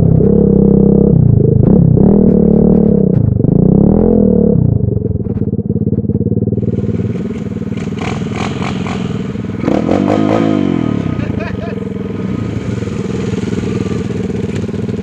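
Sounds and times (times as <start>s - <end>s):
small motorbike engine revving: 6.6s - 15.0s.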